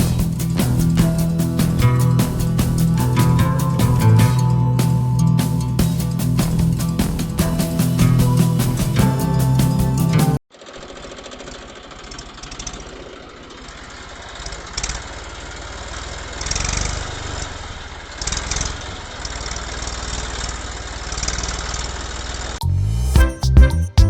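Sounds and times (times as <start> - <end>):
small engine running: 10.5 - 22.6.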